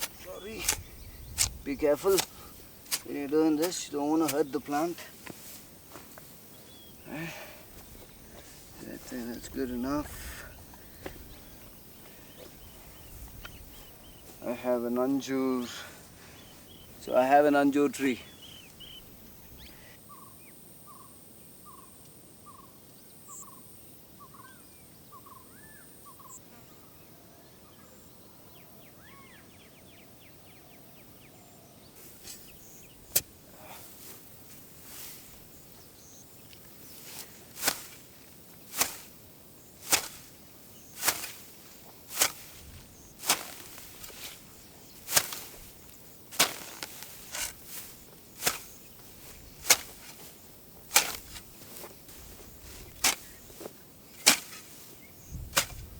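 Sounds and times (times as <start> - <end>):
hand tool chopping into ground: 0.0 - 6.1, 32.2 - 33.4, 37.0 - 38.1, 38.7 - 39.2, 39.8 - 55.9
bird calling: 18.1 - 23.6.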